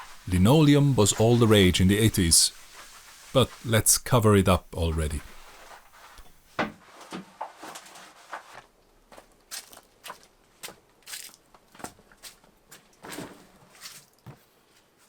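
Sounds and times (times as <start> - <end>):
crunches and scrapes on floor: 5.3 - 10.2.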